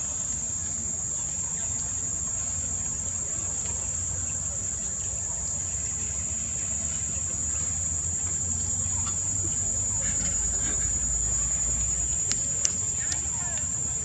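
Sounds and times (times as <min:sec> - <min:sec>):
insects droning: 0:00.0 - 0:14.0
faint ticks: 0:08.2 - 0:13.8.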